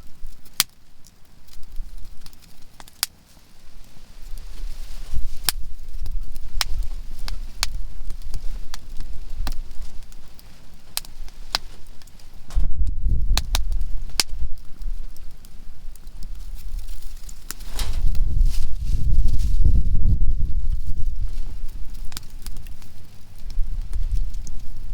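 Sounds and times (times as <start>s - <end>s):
campfire popping and cracking: 0.0s - 24.9s
low rumble: 12.4s - 15.0s, 17.5s - 21.8s.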